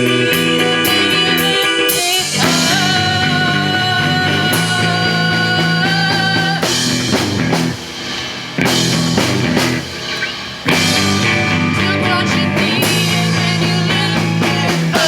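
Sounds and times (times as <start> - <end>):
guitar note ringing: 0.0 - 3.2, 8.6 - 12.0
rock band playing: 0.0 - 15.0.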